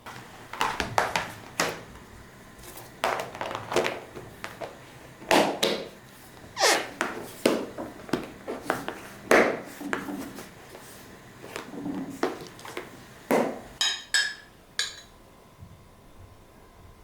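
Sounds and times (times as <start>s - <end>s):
utensils and dishes clattering: 13.8s - 15.1s.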